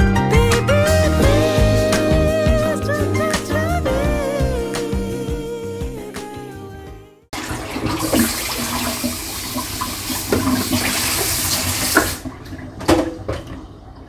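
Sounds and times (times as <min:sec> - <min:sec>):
water running from tap: 0:07.4 - 0:14.0.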